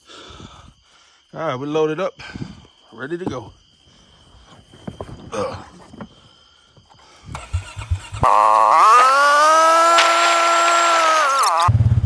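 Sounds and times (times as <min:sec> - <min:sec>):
vehicle engine starting and running: 0:07.3 - 0:12.0.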